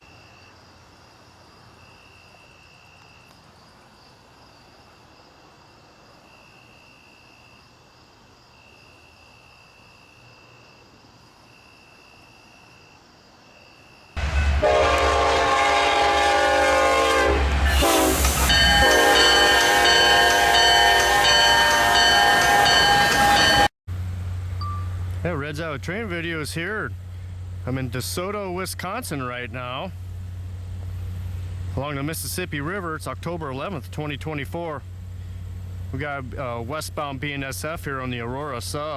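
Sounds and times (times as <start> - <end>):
locomotive air horn: 14.2 - 23.7
diesel engines rumbling: 14.2 - 38.9
thin high tone: 17.8 - 23.7, 24.6 - 25.1.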